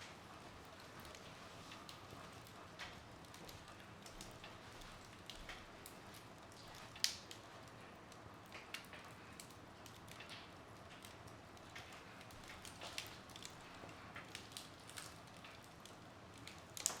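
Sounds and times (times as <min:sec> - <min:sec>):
wood fire crackling and hissing: 0:00.0 - 0:17.0.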